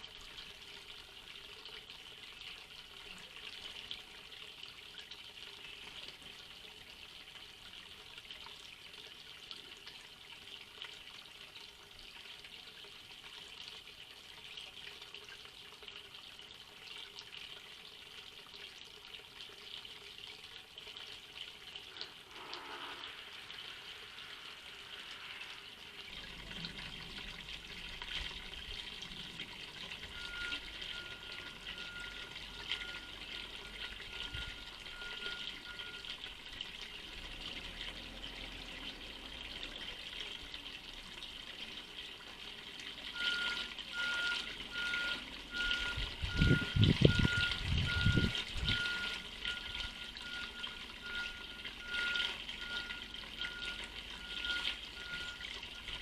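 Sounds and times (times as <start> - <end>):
steady hiss: 22.0 - 26.0.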